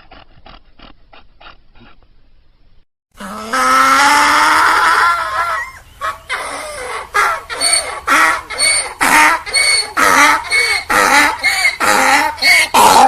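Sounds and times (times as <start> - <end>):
donkey braying: 3.2 - 13.0.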